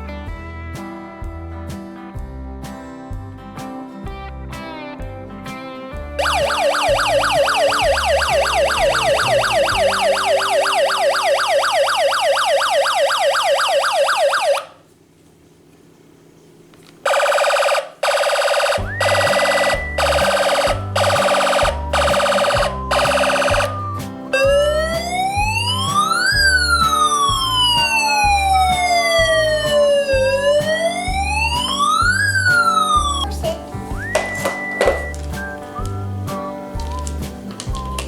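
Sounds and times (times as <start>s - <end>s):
background music: 0.0s - 14.5s, 18.2s - 38.0s
pulsed electronic horn blasts: 6.2s - 12.9s, 18.3s - 33.2s
warbling electronic police siren: 6.2s - 14.8s, 17.1s - 33.3s, 34.0s - 36.0s.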